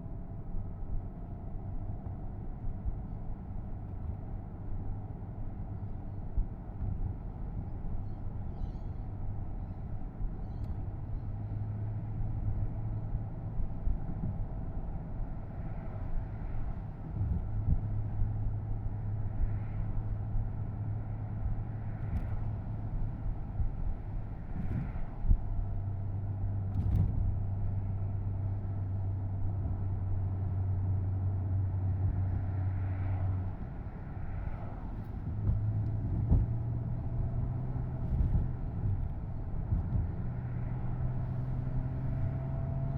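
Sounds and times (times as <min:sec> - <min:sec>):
road and tyre noise: 0:00.0 - 0:42.9
car engine cruising: 0:16.0 - 0:42.9.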